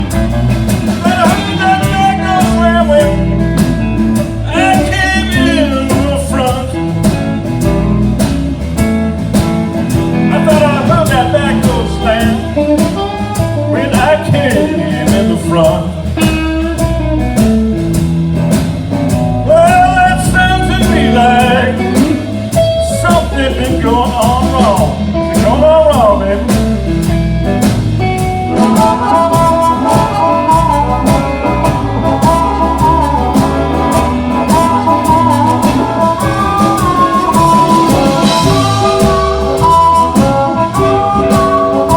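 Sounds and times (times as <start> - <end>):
blues harmonica: 0.0 - 41.9
guitar accompaniment: 0.0 - 41.9.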